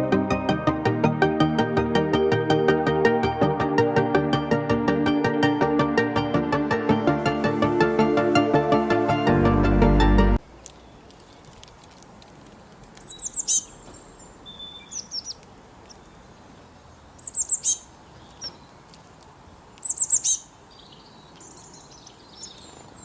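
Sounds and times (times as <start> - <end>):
small bird chirping: 13.0 - 16.2.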